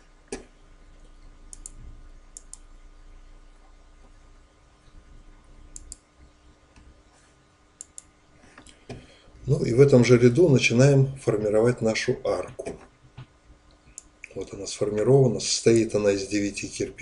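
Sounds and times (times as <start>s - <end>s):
quiet steady hum: 0.0s - 17.0s
faint sharp clicks: 0.3s - 2.7s, 5.7s - 6.1s, 7.8s - 8.9s, 13.2s - 14.4s.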